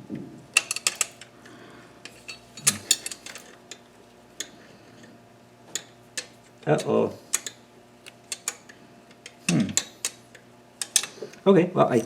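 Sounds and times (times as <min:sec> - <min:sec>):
metal tools clinking: 0:02.1 - 0:03.6.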